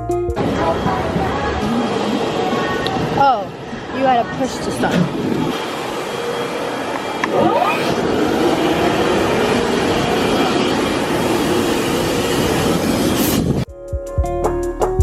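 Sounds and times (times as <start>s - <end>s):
car wash machinery rushing: 0.4s - 13.7s
rising machine whine: 5.1s - 13.7s.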